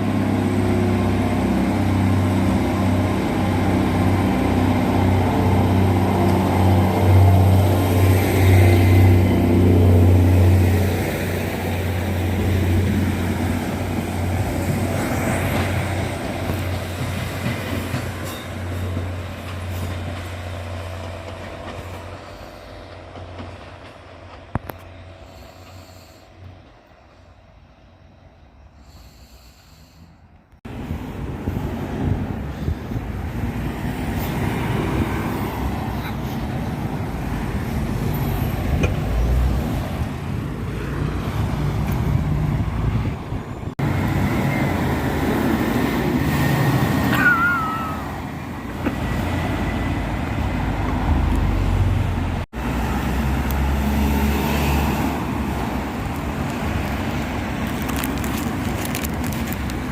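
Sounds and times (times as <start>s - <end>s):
vehicle engines passing: 30.7s - 59.9s.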